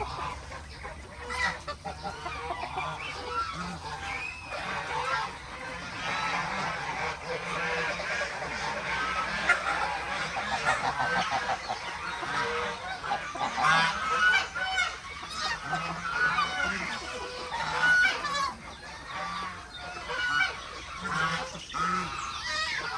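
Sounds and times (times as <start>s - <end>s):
geese honking: 0.0s - 22.9s
poultry calling: 0.0s - 22.9s.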